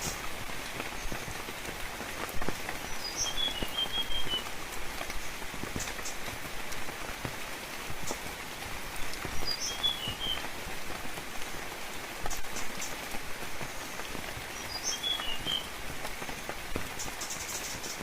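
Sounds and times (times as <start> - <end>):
rain falling on foliage: 0.0 - 18.0
bird chirping: 2.9 - 4.4, 9.4 - 10.4, 14.6 - 15.6.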